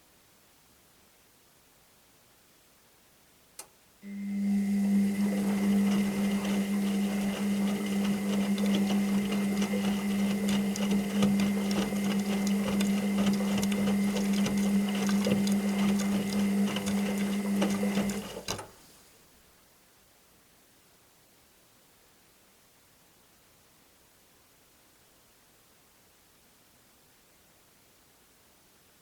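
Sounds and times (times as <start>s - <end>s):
washing machine motor humming: 4.0s - 18.7s.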